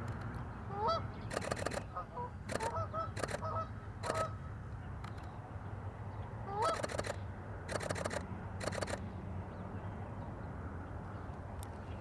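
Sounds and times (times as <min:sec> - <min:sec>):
sharp clicks: 0:00.0 - 0:00.4, 0:01.3 - 0:04.3, 0:06.7 - 0:09.0.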